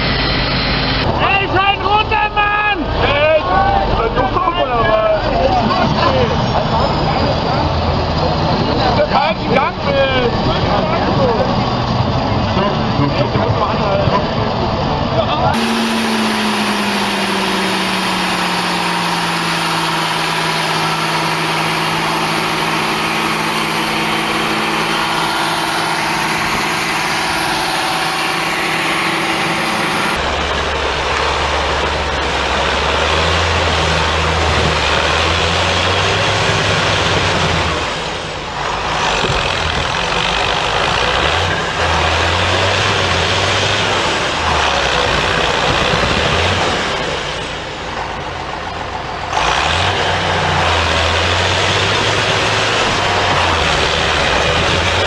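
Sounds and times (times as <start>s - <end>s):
deep engine labouring: 0.0s - 55.0s
heavy vehicle engine slowing: 0.0s - 55.0s.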